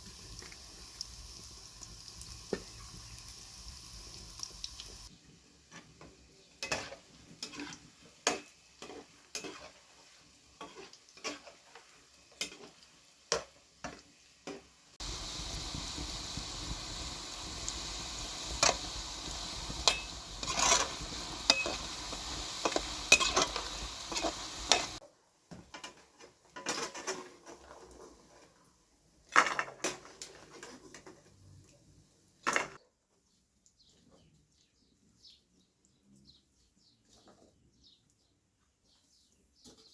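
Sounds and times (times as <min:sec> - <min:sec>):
food sizzling: 0:00.0 - 0:25.0
utensils clinking and scraping: 0:19.6 - 0:25.0.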